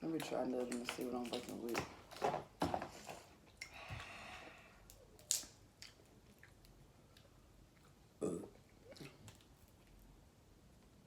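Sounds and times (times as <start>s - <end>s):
crab legs being broken open: 4.8s - 6.0s
crab shell cracking: 4.8s - 6.8s
chewing: 5.2s - 10.0s.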